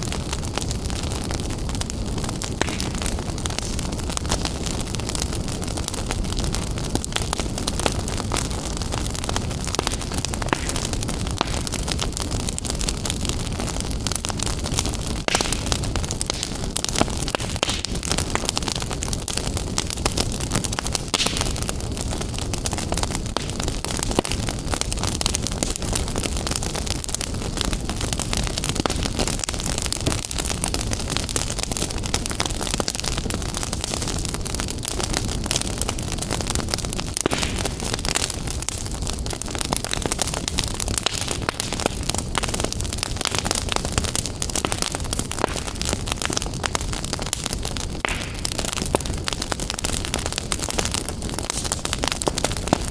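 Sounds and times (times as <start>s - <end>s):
fire flames rushing: 0.0s - 52.9s
wood fire crackling and popping: 0.0s - 52.9s.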